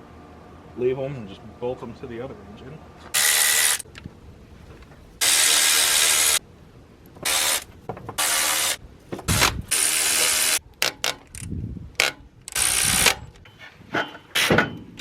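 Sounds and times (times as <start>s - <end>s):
ratchet wrench clicking: 9.7s - 13.2s.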